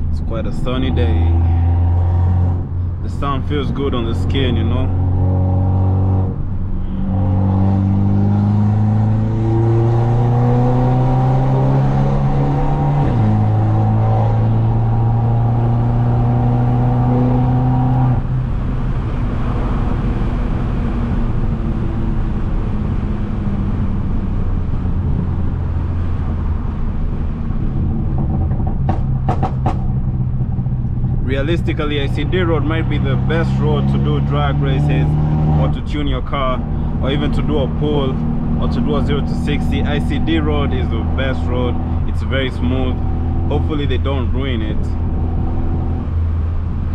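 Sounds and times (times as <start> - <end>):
car engine accelerating: 0.0 - 46.9.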